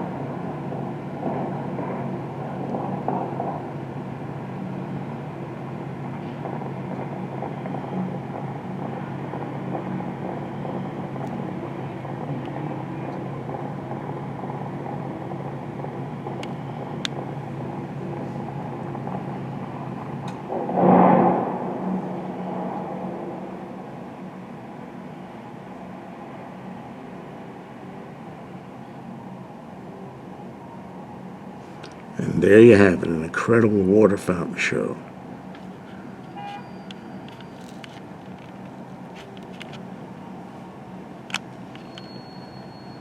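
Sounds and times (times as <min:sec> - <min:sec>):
low ambient rumble: 0:00.0 - 0:43.0
rushing swell: 0:19.8 - 0:25.1.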